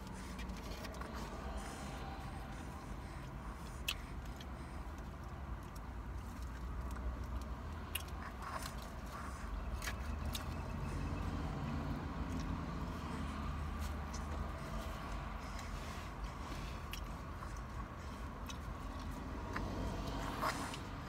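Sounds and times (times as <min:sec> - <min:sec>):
chewing and crunching food: 0:00.0 - 0:21.0
low rumble inside car: 0:00.0 - 0:21.0.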